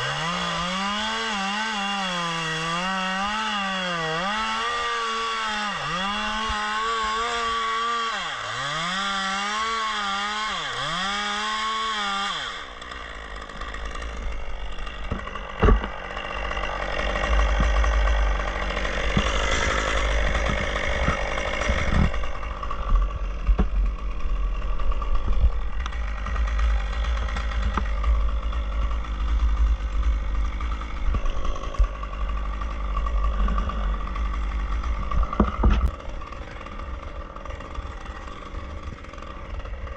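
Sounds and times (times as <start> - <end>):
chainsaw cutting: 0.0 - 39.9
scattered knocks: 15.1 - 16.0, 19.1 - 22.2, 35.0 - 35.9
heavy low rumble: 17.1 - 36.0.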